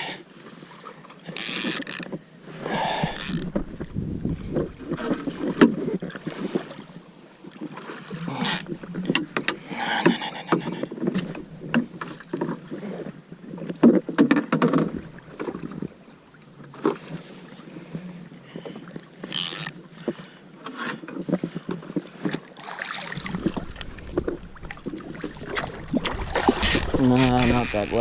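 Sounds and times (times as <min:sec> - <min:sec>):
water splashing: 0:22.4 - 0:28.0.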